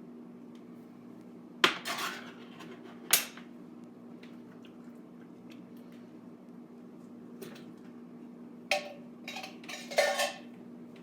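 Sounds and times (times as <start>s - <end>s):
kitchenware rattling: 8.7s - 10.5s.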